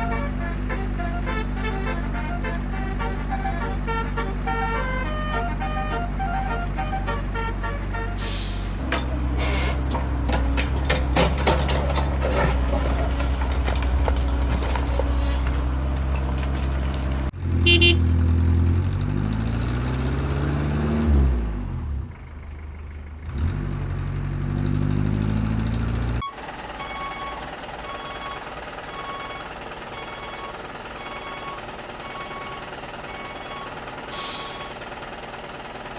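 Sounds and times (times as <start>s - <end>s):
truck horn toot: 0.0s - 9.8s, 17.6s - 18.2s
truck engine running: 0.0s - 35.9s.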